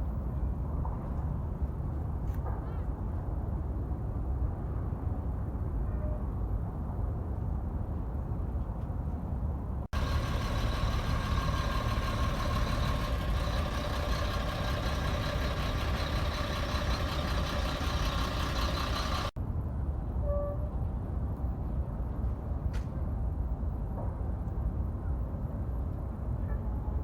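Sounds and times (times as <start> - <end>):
truck diesel engine rumbling: 9.9 - 19.4.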